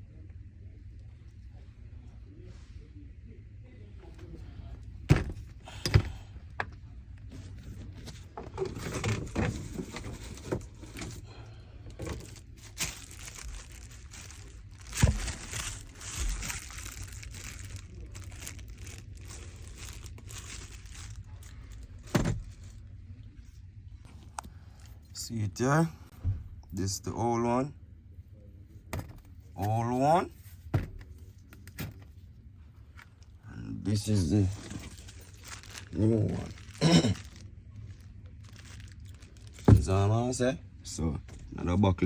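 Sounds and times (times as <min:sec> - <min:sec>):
rustling and crinkling: 0:04.0 - 0:25.2, 0:34.0 - 0:40.4
metal parts knocking and clunking: 0:05.0 - 0:06.8.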